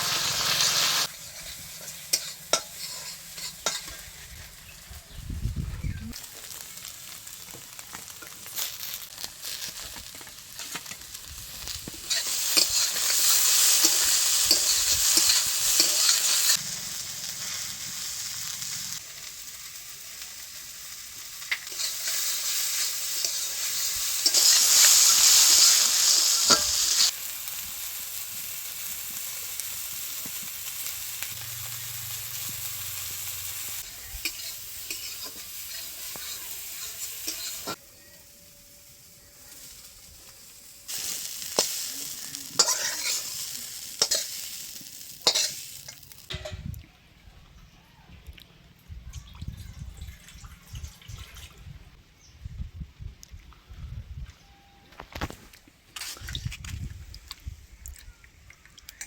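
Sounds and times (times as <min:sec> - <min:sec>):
food sizzling in a pan: 0:00.0 - 0:05.2, 0:06.1 - 0:46.5.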